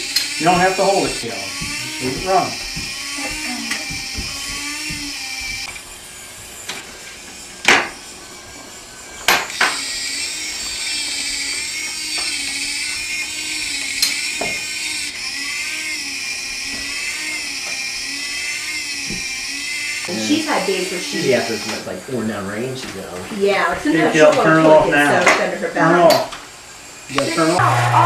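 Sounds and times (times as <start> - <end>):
toy train motor whining: 0.0 - 28.0.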